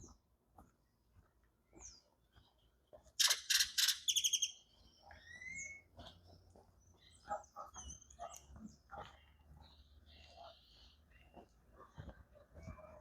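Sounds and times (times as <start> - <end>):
faint bird chirps: 1.6 - 11.4
bird harsh scratchy calls: 3.2 - 6.2.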